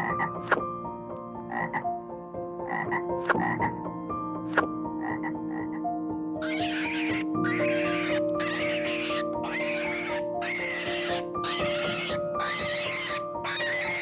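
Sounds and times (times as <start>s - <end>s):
soft background music: 0.0s - 14.0s
short animal calls: 6.4s - 14.0s.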